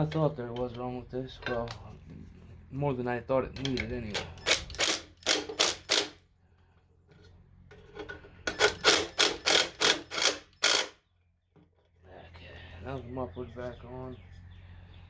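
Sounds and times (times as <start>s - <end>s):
ratchet wrench ratcheting: 4.2s - 6.2s, 8.5s - 11.0s.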